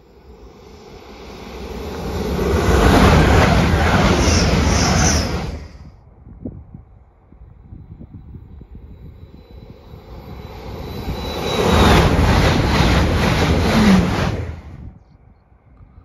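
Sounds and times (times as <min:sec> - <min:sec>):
high whine dropping in pitch: 0:00.0 - 0:05.9, 0:08.2 - 0:14.9
train passing at high speed: 0:00.0 - 0:06.0, 0:07.0 - 0:15.0.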